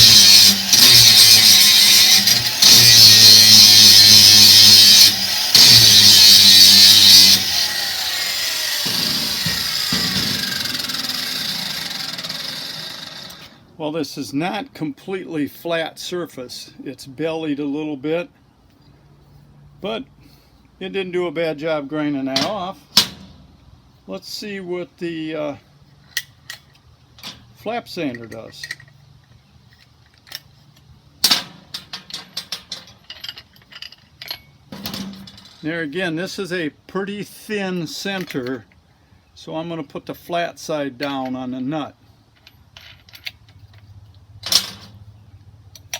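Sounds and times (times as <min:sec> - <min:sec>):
grinder disc spinning down whine: 0:00.0 - 0:13.4
angle grinder grinding metal: 0:00.0 - 0:13.6
metal clicks and clinks: 0:28.1 - 0:30.9, 0:31.7 - 0:35.6, 0:42.4 - 0:44.9.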